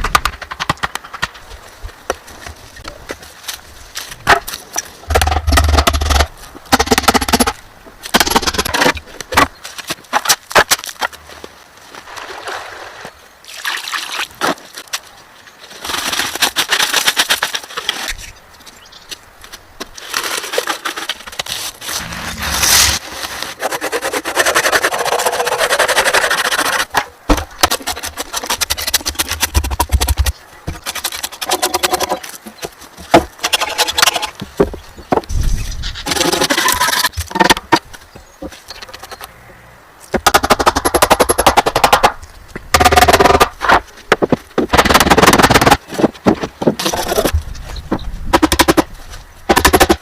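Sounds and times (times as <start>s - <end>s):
wood knocking and cracking: 0.0s - 3.3s.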